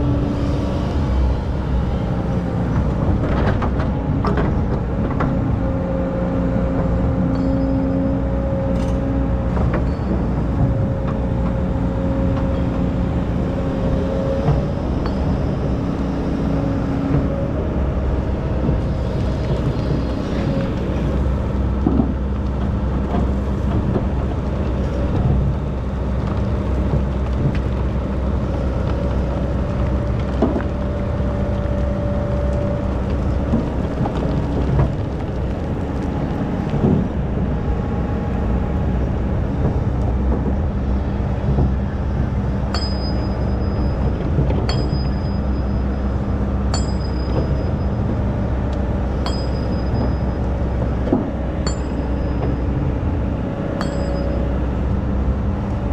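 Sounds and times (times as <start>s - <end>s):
excavator diesel engine running: 0.0s - 55.9s
sharp metallic clinks: 46.7s - 47.9s, 49.2s - 50.4s, 51.7s - 52.4s, 53.8s - 54.6s.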